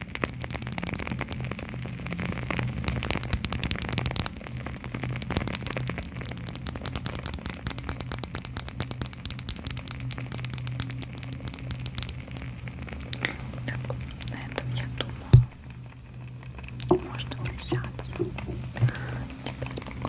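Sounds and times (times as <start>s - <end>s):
fast tapping on small boxes: 0.0s - 1.5s, 2.9s - 4.4s, 5.1s - 12.5s.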